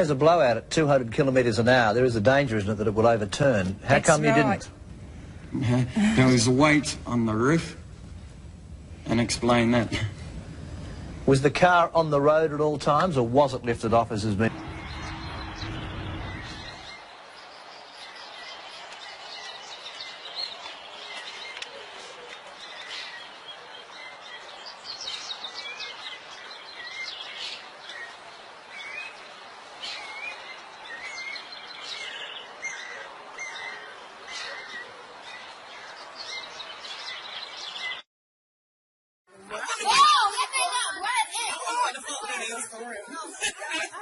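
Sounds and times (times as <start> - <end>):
steady background hiss: 0.0 - 37.8
small birds chirping: 12.2 - 38.0.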